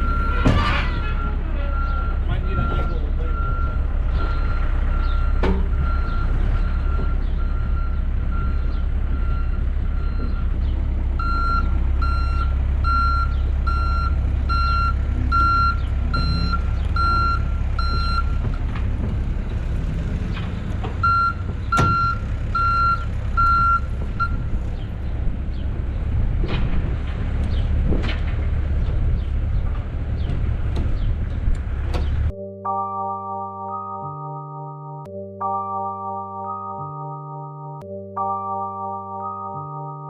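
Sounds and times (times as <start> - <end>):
backup alarm beeping: 0.0 - 10.5, 11.2 - 18.5, 21.0 - 24.5
diesel engine running: 0.0 - 32.9.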